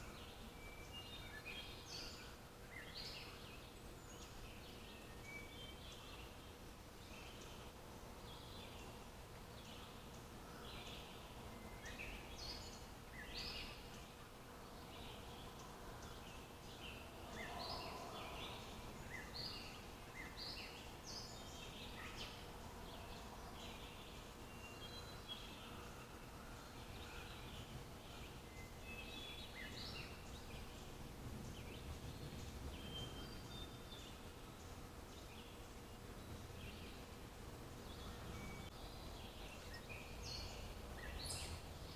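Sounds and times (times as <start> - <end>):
songbirds chirping: 0.0 - 41.9
thin steady hum: 0.0 - 41.9.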